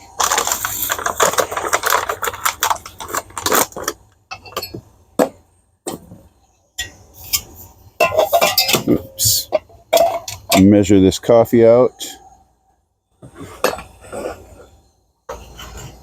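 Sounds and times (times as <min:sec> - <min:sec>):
handling crackling and rustling: 0:00.0 - 0:10.8.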